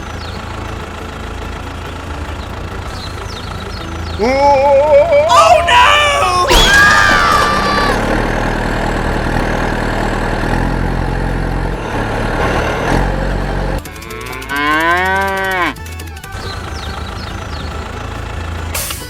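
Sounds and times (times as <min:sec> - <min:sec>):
noisy rumble: 0:00.0 - 0:14.0
cow mooing: 0:13.9 - 0:15.8.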